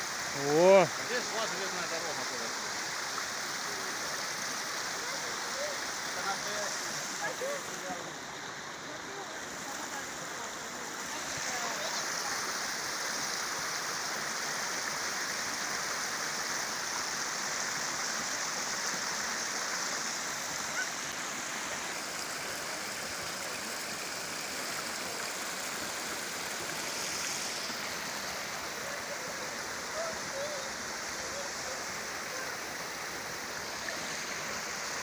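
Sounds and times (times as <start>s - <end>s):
river water rushing: 0.0s - 35.0s.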